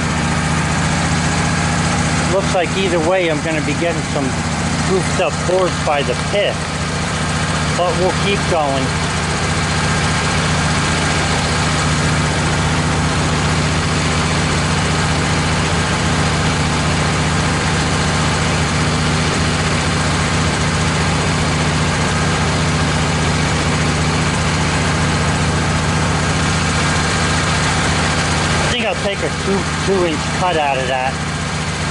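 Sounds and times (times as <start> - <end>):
bandsaw mill engine running: 0.0 - 31.9.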